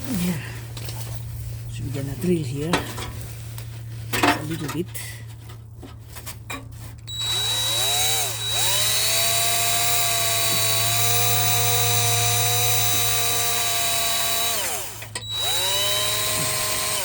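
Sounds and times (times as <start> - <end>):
electric drill drilling metal: 7.1 - 17.0.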